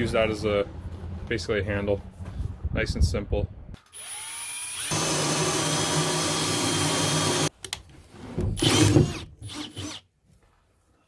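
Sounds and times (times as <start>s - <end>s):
power drill hole saw grinding wood: 3.9s - 7.5s, 8.6s - 10.0s.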